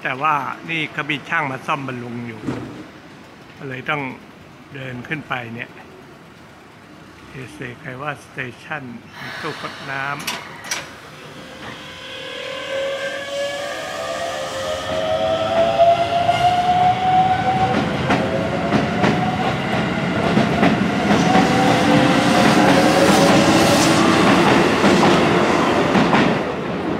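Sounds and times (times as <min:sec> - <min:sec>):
train traction motors whining: 0:09.2 - 0:26.6.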